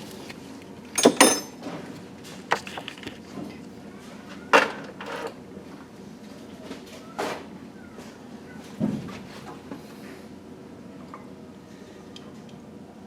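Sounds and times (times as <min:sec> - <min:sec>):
metal tools clinking: 0:01.0 - 0:01.6.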